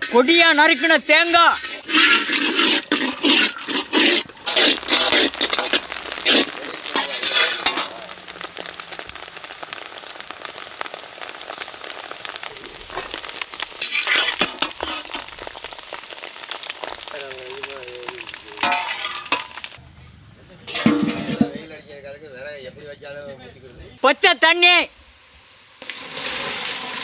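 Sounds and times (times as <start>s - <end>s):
metal spatula scraping wok: 0.0s - 8.5s, 12.8s - 15.7s, 18.6s - 19.8s, 20.7s - 21.7s
coconut sizzling in ghee: 0.0s - 19.8s, 24.0s - 27.0s.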